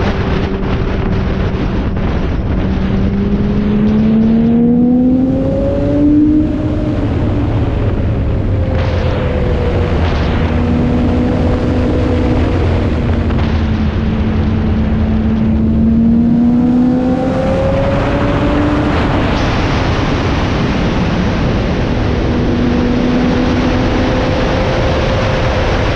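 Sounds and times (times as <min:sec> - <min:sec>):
motorcycle engine running: 0:00.0 - 0:19.6
wind rush on microphone: 0:00.0 - 0:25.9.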